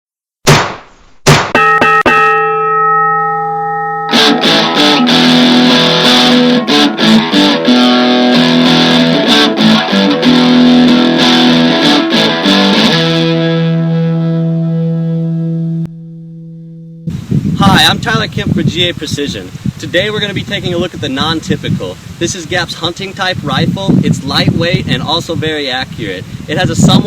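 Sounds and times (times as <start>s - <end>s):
electric guitar strumming: 1.6s - 17.2s.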